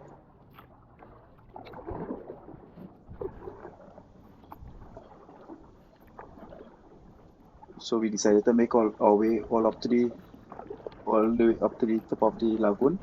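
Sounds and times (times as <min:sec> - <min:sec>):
paddle splashes and drips: 0:00.0 - 0:13.0.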